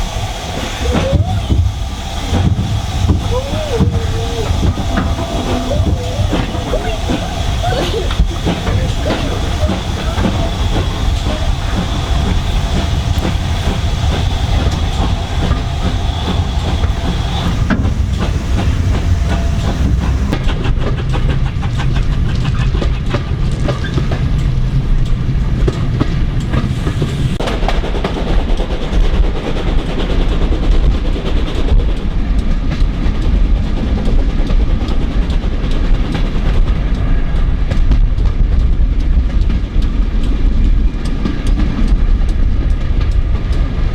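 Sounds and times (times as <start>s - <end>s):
high-pitched whine: 0.0s - 20.4s
train rumble: 0.0s - 43.9s
train wheels clicking over rail joints: 0.0s - 43.9s.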